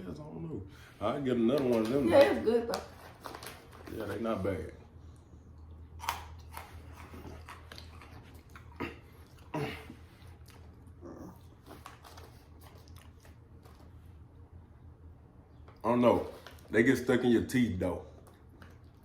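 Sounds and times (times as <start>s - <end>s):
chewing crunchy food: 5.1s - 14.4s, 15.5s - 16.8s, 18.0s - 19.0s.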